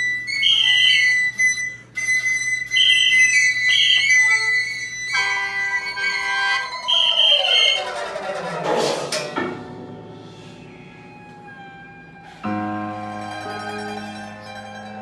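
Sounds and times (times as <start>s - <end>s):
bamboo flute high notes: 0.0s - 9.6s, 10.2s - 15.0s
sustained high tone: 2.8s - 8.3s
held chord: 3.7s - 15.0s.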